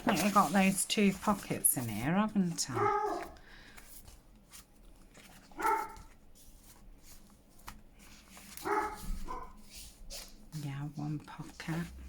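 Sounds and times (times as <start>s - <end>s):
pet whining: 2.7s - 3.4s, 5.6s - 6.0s.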